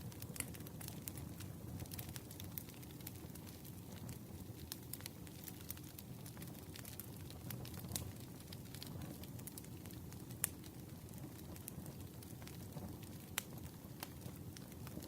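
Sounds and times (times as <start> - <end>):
campfire rumble: 0.0 - 15.0
fire crackling and popping: 0.0 - 15.0.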